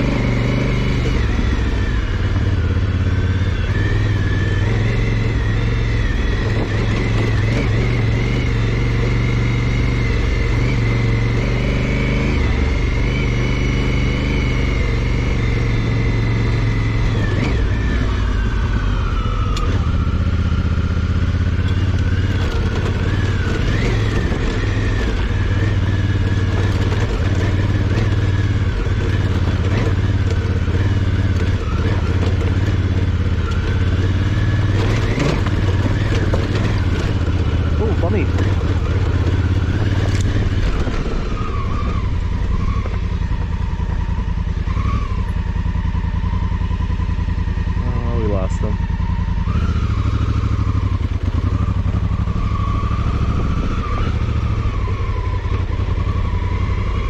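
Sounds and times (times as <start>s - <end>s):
motorcycle engine running: 0.0s - 57.0s
knocks and rattles: 34.7s - 41.2s.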